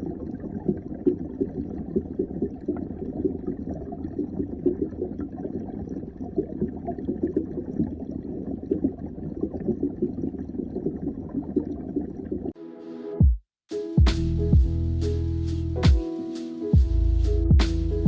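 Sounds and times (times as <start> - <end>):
underwater bubbling hiss: 0.0 - 12.5.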